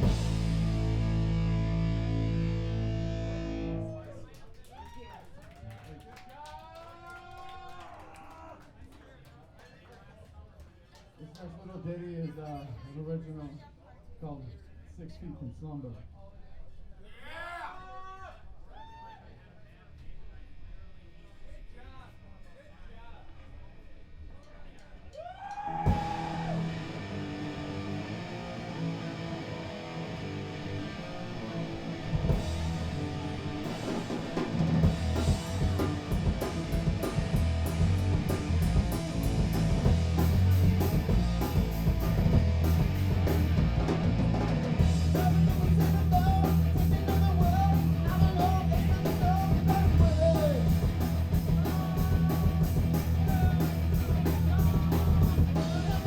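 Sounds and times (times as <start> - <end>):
drums hitting steadily: 0.0 - 3.8, 24.8 - 30.2, 30.8 - 56.0
electric guitar note ringing: 0.0 - 4.0, 25.9 - 43.2
punk rock band playing live: 0.0 - 4.0, 25.8 - 56.0.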